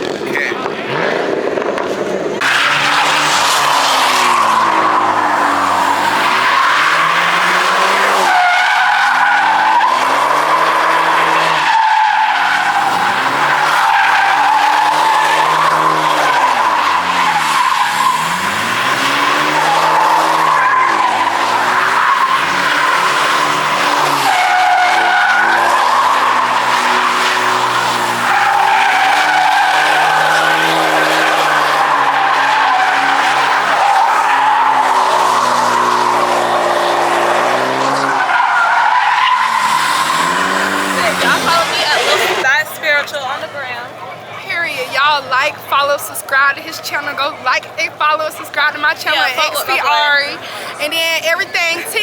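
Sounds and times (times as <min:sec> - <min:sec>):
car engine revving: 0:00.0 - 0:43.3
tyres squealing: 0:02.4 - 0:43.6.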